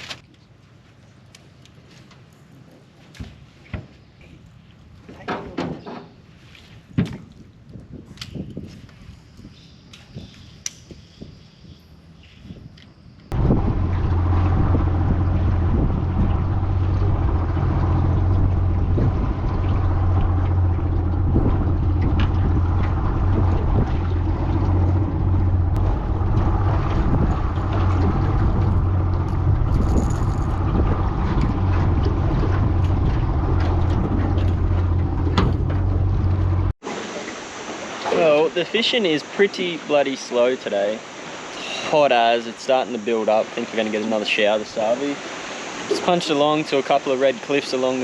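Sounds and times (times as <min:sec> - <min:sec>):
outboard motor humming: 0:13.3 - 0:36.8.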